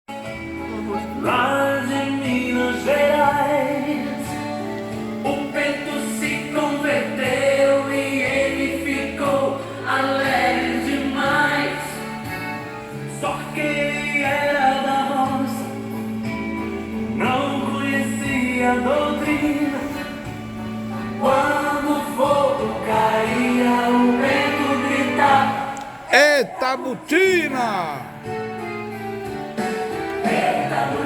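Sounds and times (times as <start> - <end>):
song with sung vocals: 21.1 - 28.4, 30.1 - 31.0.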